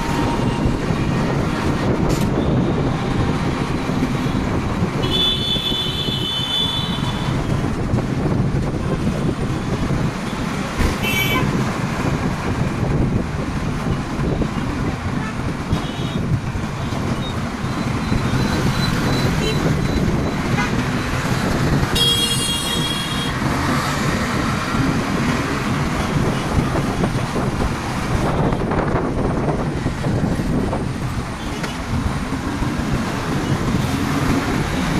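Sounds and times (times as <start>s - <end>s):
traffic engine and road rumble: 0.0s - 34.9s
vehicle horns honking: 5.0s - 7.4s, 11.0s - 11.5s, 21.9s - 23.3s.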